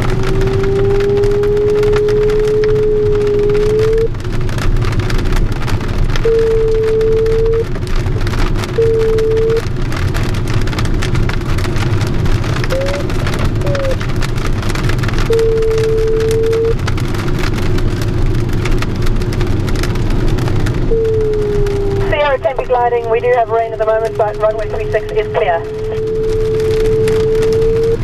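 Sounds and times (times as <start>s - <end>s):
variometer tone: 0.0s - 4.1s, 6.2s - 7.7s, 8.7s - 9.7s, 12.6s - 14.0s, 15.2s - 16.8s, 20.8s - 28.0s.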